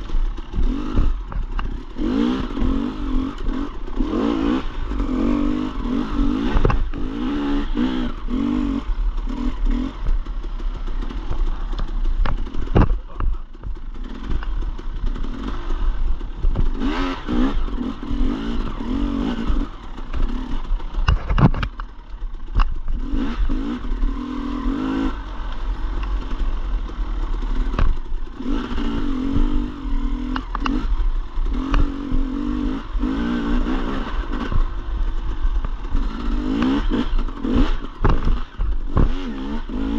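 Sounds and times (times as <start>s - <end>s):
dirt bike engine revving: 0.0s - 39.9s
sharp knocks and clatter: 6.2s - 7.2s, 11.1s - 15.6s, 19.5s - 23.1s, 35.5s - 39.5s.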